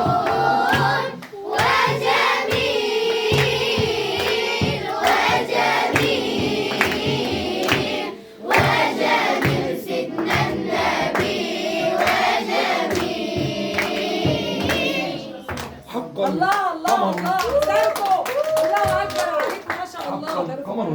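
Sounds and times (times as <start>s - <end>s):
children singing together: 0.0s - 15.6s
steady percussive beat: 0.0s - 17.6s.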